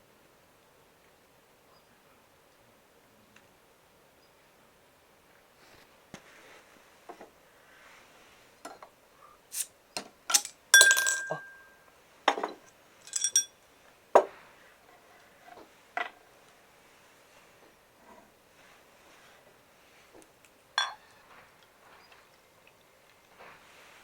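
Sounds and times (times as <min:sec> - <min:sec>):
tableware clinking: 0:10.3 - 0:13.6, 0:20.8 - 0:21.3.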